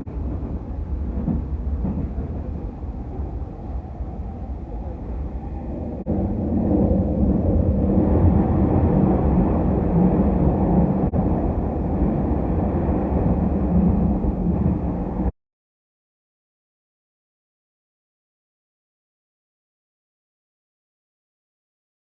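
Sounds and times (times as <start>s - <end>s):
train wheels and motors rumbling: 0.0s - 15.3s.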